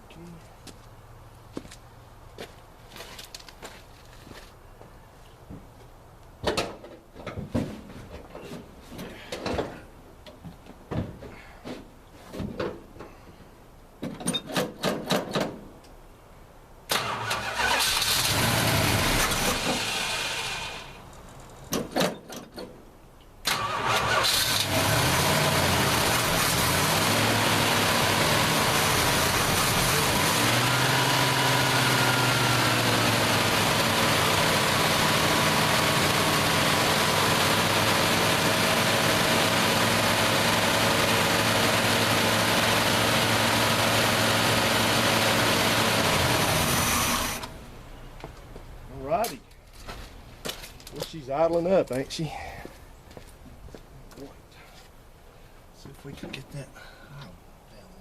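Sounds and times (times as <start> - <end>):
engine running at fast idle: 24.0 - 47.5.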